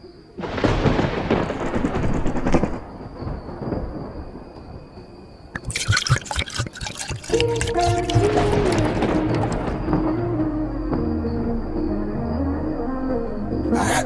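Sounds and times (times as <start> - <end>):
thunder-like rumble: 0.4 - 5.5.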